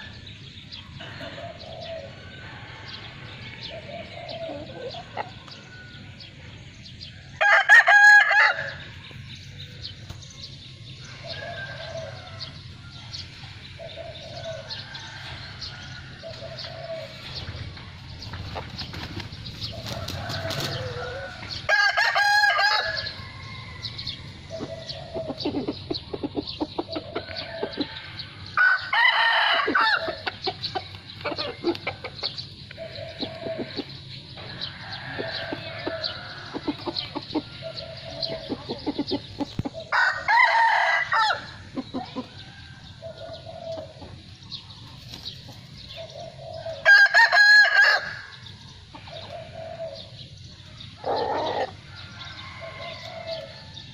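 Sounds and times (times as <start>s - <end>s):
chicken clucking: 3.7s - 5.6s, 24.4s - 28.0s, 29.6s - 40.2s, 41.4s - 47.4s
rooster crowing: 7.4s - 8.8s, 20.0s - 24.2s, 27.3s - 30.2s, 39.9s - 41.6s, 46.7s - 48.4s, 51.0s - 53.9s.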